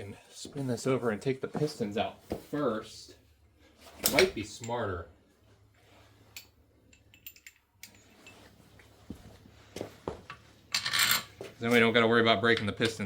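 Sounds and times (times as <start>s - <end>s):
tools and engine parts clicking: 6.3s - 8.4s.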